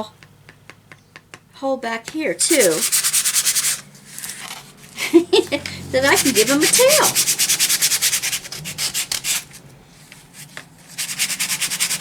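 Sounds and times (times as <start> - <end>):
sandpaper rubbing on wood: 2.5 - 3.8, 6.0 - 9.6, 10.4 - 12.0.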